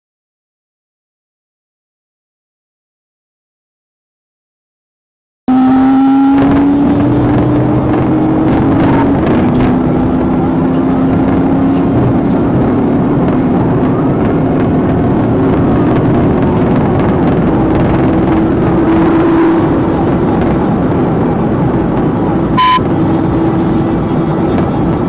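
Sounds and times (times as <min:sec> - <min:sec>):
road and wind noise: 0:05.5 - 0:25.0
vehicle engine running hard: 0:05.5 - 0:25.0.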